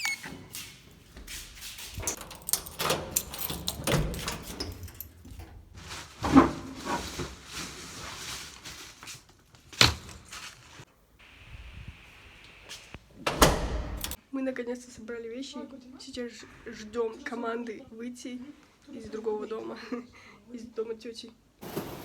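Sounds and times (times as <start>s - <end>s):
objects being handled: 0.4s - 9.4s.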